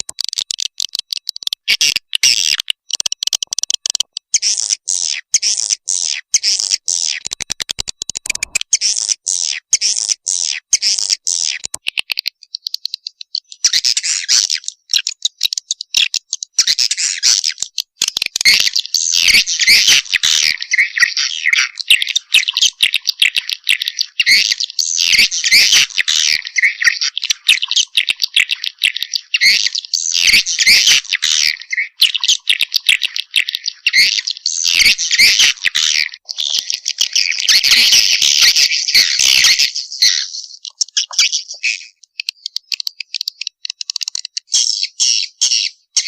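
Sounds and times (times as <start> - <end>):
very fast clicks: 0.0 - 4.8, 6.6 - 9.2, 10.9 - 13.7, 17.4 - 18.9, 40.6 - 44.5
swiftlet chittering calls: 0.0 - 46.0.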